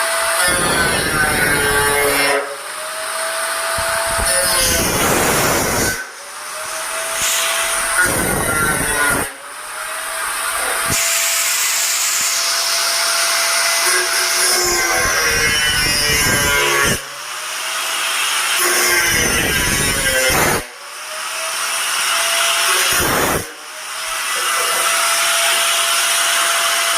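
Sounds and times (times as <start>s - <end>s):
rough grinding noise: 0.0s - 2.8s, 3.6s - 17.1s
angle grinder whine: 0.0s - 26.9s.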